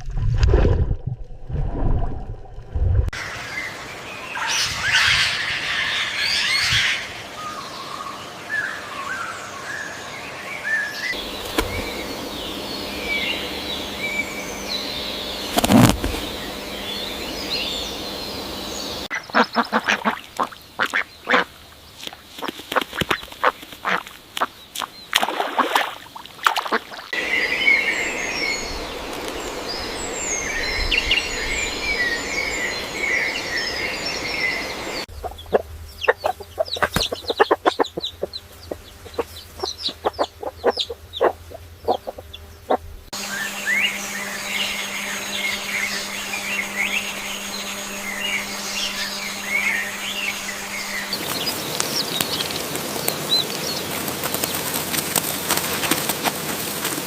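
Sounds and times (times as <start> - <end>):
small birds chirping: 3.2 - 56.4
ducks quacking: 19.1 - 21.6, 22.4 - 25.8, 35.2 - 42.8.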